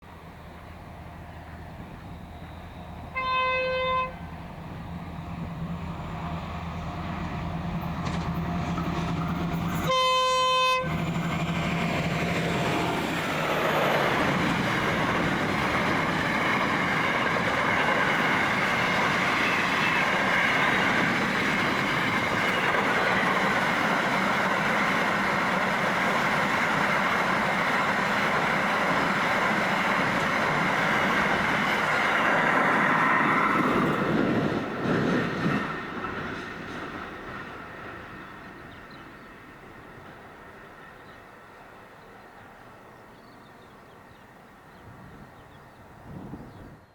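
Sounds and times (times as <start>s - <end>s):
train rumble and wheel clatter: 0.0s - 46.9s
train horn blasts: 3.1s - 4.3s, 9.7s - 11.0s.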